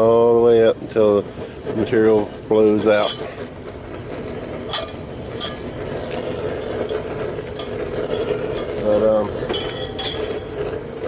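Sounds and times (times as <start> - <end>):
steady rushing noise: 0.0 - 11.0
metal tongs clinking on metal cup: 9.5 - 10.5.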